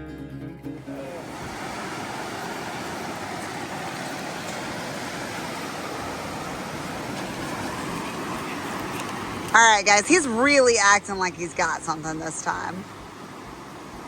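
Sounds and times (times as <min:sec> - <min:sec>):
acoustic guitar music: 0:00.0 - 0:01.6
surf washing onto beach: 0:00.8 - 0:14.0.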